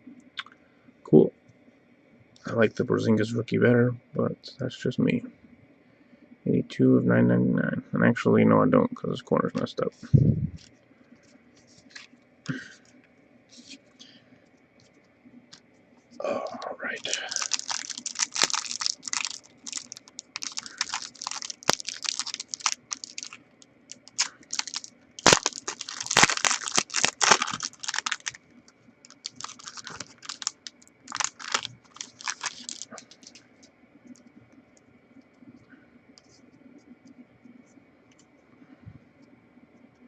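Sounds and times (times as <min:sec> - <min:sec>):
wrapper crinkling and tearing: 0:17.0 - 0:28.4, 0:29.0 - 0:33.5.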